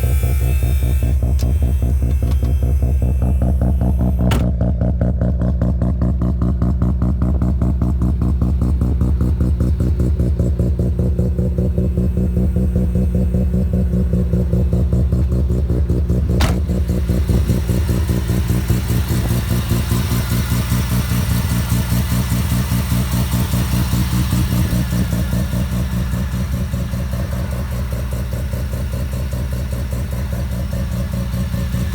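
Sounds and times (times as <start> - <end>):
sharp click: 1.3 - 2.7
rotary engine idling: 9.8 - 28.4.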